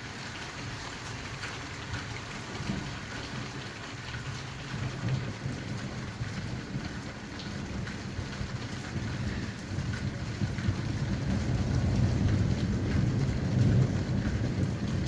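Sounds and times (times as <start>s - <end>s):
rain falling: 0.0s - 15.0s
low thunder rumble: 4.8s - 15.0s.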